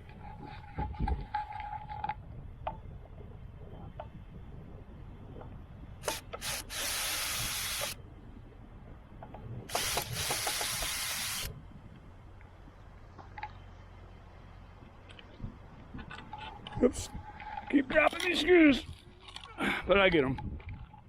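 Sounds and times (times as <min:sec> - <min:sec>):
cordless drill driving screws: 0:06.0 - 0:08.0, 0:09.7 - 0:11.5.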